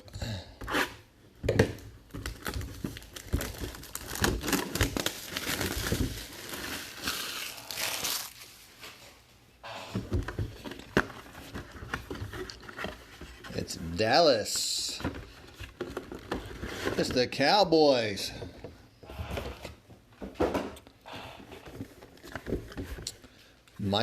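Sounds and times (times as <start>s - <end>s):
packaging crinkling and ripping: 2.1s - 8.9s.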